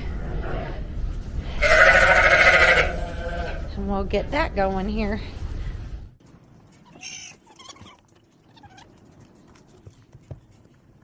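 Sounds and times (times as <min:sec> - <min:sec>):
barn animals calling: 0:01.6 - 0:03.7.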